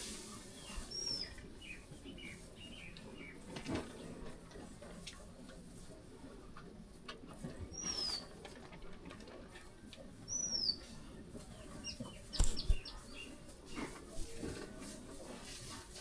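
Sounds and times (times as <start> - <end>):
sharp knocks: 12.4 - 12.9
quick short bird chirps: 12.4 - 13.0.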